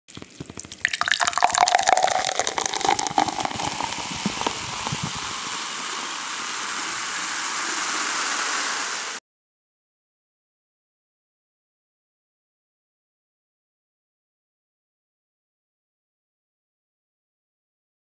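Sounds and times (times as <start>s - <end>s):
water running from a tap: 0.1s - 9.2s.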